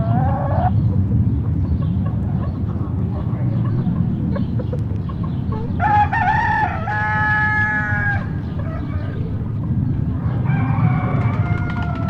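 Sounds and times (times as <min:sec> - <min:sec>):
rooster crowing: 0:05.8 - 0:09.2, 0:10.3 - 0:12.0.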